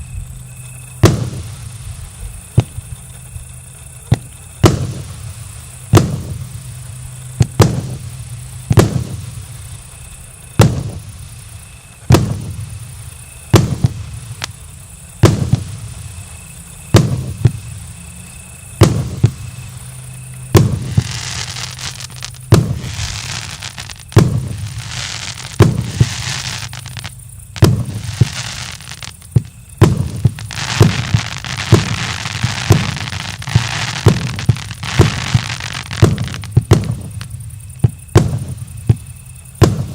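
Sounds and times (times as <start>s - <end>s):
firework crackling: 0.0s - 39.9s
firework shells banging: 18.7s - 39.9s.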